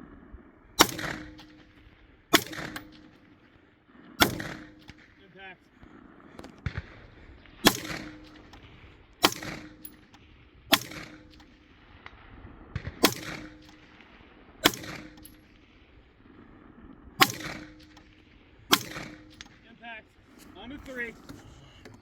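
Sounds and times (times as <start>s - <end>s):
rifle shots: 0.8s - 3.5s, 4.2s - 5.2s, 6.4s - 16.1s, 17.2s - 20.3s.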